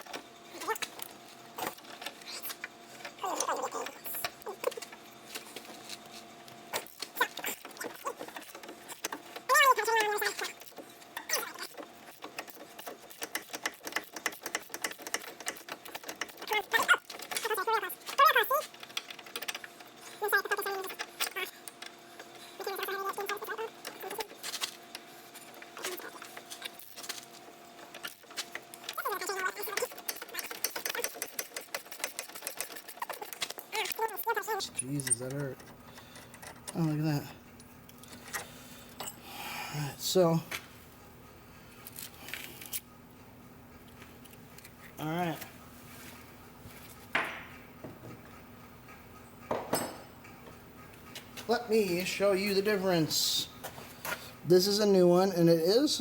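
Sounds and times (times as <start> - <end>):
faint steady hum: 0.0 - 56.0
ratchet clicking on a nut: 12.2 - 16.5.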